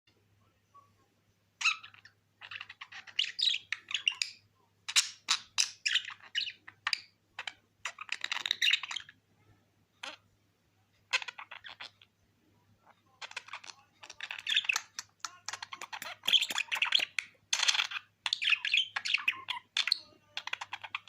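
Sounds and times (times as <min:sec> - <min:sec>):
budgerigar chattering: 0:01.6 - 0:09.2, 0:11.1 - 0:12.1, 0:13.2 - 0:21.0.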